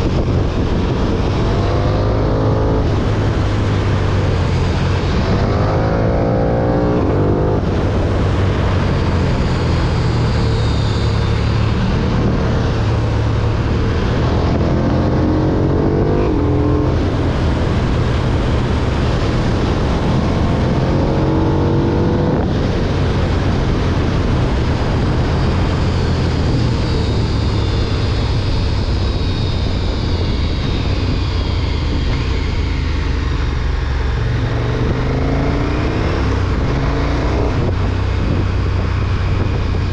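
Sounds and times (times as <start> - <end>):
motorcycle engine revving: 0.0 - 39.9
wind rumble on microphone: 0.0 - 39.9.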